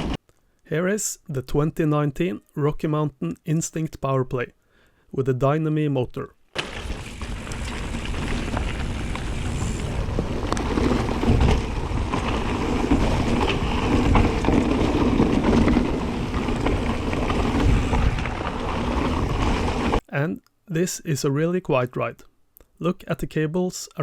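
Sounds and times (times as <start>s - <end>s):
tyres rolling on trail: 6.5s - 20.0s
wind on microphone: 6.8s - 20.0s.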